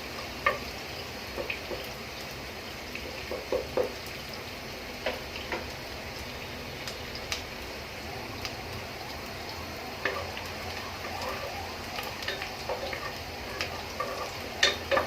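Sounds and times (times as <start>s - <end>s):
onions sizzling in oil: 0.0s - 15.0s
spoon scraping and clicking pot: 12.3s - 15.0s.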